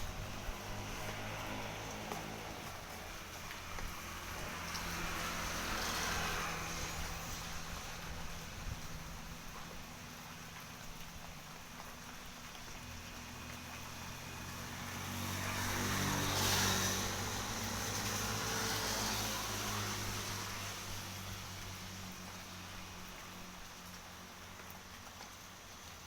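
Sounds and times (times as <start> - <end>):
vehicle passing by: 0.0 - 10.5, 12.8 - 25.3.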